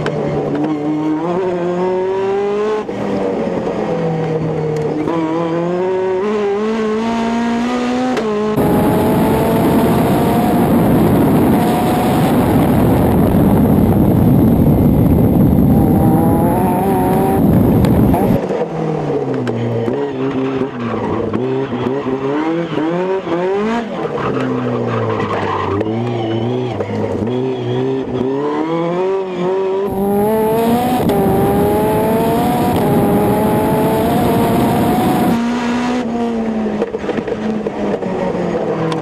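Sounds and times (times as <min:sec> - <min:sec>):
car engine revving: 0:00.3 - 0:38.9
loud rushing noise: 0:08.6 - 0:18.4.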